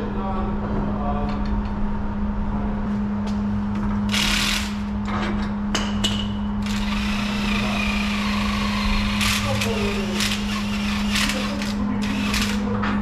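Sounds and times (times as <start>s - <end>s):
power tool running: 4.1s - 5.0s, 6.6s - 12.9s
low hum: 6.3s - 11.4s.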